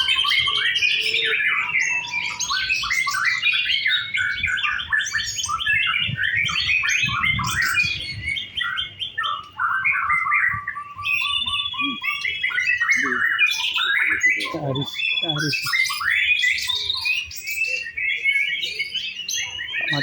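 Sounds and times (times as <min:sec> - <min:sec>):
bird whistled song: 0:00.0 - 0:20.0.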